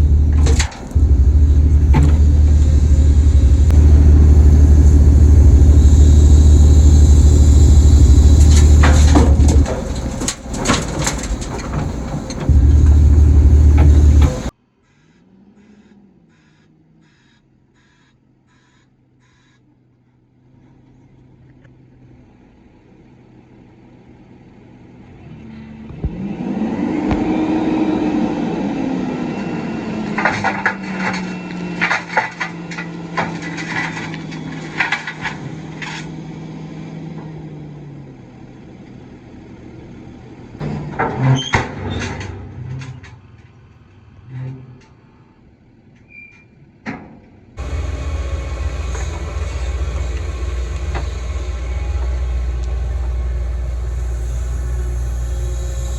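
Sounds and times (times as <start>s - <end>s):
diesel engine revving: 0.0s - 14.5s, 25.2s - 34.9s, 47.6s - 55.9s
sharp clanks and knocks: 0.0s - 14.5s, 46.8s - 55.9s.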